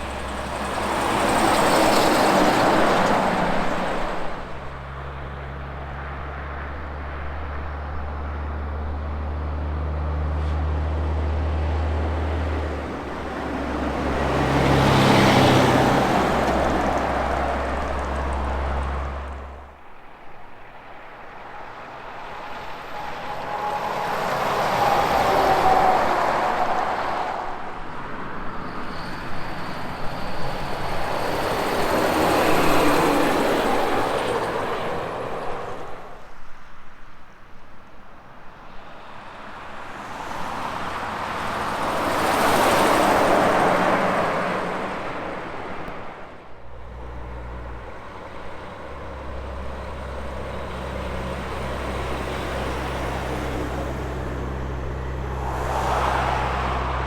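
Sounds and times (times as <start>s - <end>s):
vehicles passing on highway: 0.0s - 57.0s
low engine drone: 46.7s - 57.0s.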